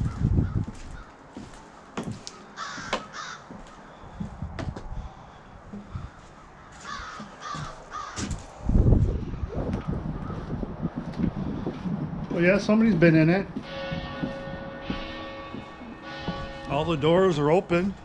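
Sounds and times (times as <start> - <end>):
cawing bird calls: 0.0 - 4.3, 5.0 - 8.5, 9.8 - 11.7.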